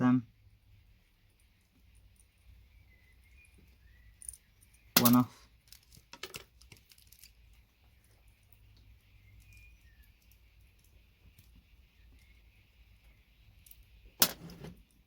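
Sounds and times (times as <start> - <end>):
faint clicks of small parts: 3.2 - 15.0.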